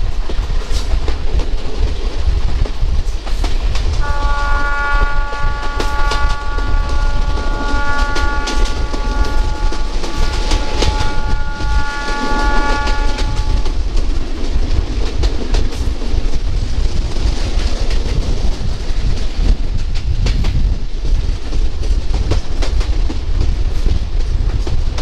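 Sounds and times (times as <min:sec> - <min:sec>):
train running low rumble: 0:00.0 - 0:25.0
train horn: 0:04.0 - 0:14.0.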